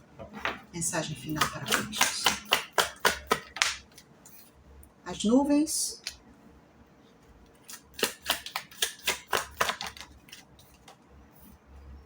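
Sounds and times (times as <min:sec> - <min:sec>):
cards snapping and flicking: 0:01.4 - 0:04.0, 0:07.6 - 0:11.0.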